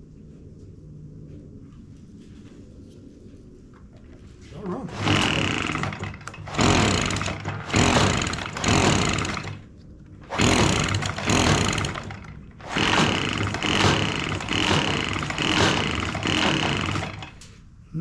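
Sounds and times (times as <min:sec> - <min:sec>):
recoil starter pulls: 0:04.6 - 0:17.6
small engine turning over: 0:04.9 - 0:09.6, 0:10.2 - 0:17.5.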